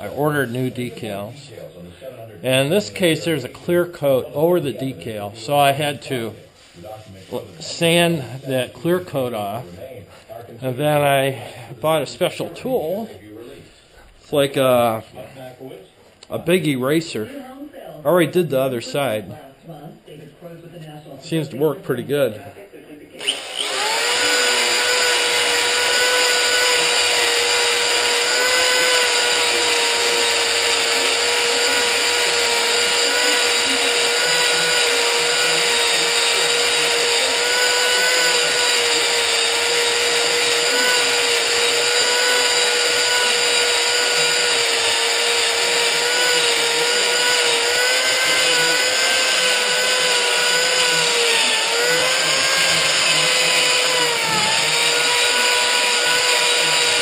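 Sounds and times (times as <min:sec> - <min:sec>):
power drill spinning eraser wheel: 0:23.2 - 0:57.0.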